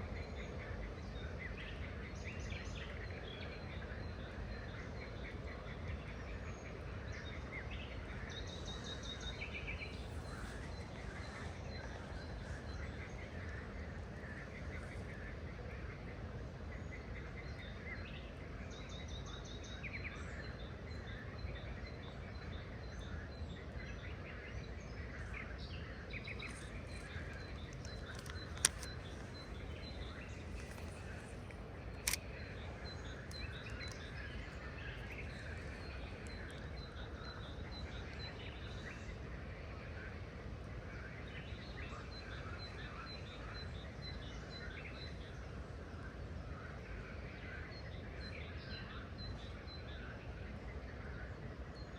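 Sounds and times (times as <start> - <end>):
wild birds chirping: 0.0 - 51.9
sharp clicks: 26.4 - 34.2.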